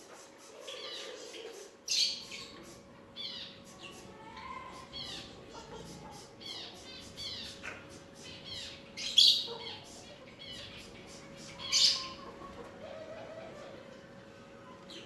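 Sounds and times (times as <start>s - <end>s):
birds chirping: 0.0s - 15.0s
harsh bird squawks: 3.4s - 13.8s.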